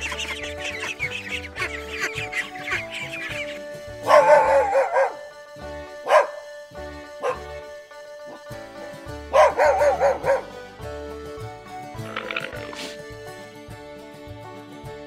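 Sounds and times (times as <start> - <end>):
background music: 0.0 - 15.0
dog barking: 4.0 - 5.2, 6.0 - 6.5, 7.2 - 7.6, 9.3 - 10.5.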